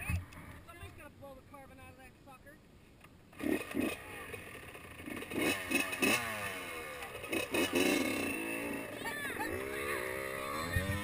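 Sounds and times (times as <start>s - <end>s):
dirt bike engine revving: 3.3s - 11.0s.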